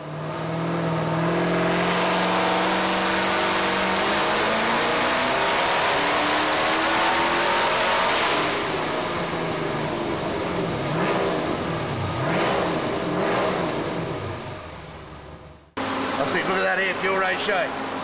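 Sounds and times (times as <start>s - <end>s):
vee eight engine at full throttle: 0.0s - 16.2s.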